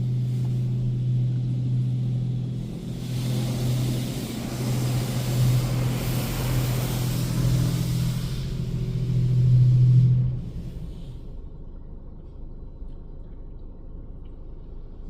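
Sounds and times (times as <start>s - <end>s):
water spraying onto car: 0.1s - 9.6s.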